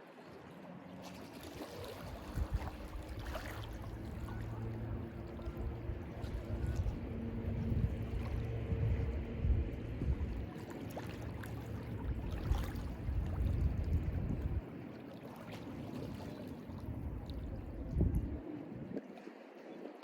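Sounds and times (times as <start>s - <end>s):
waves lapping at shore: 0.0s - 20.0s
low rumble: 2.3s - 10.5s, 11.5s - 14.6s, 16.9s - 18.4s.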